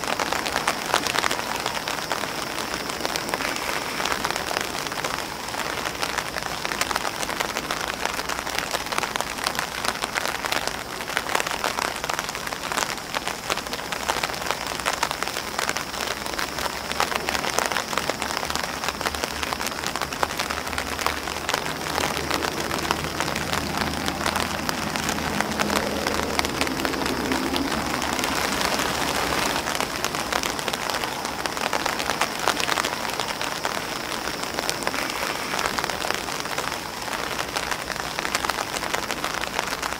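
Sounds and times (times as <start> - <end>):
rain hiss: 0.0 - 39.9
rain pattering on umbrella: 0.0 - 39.9.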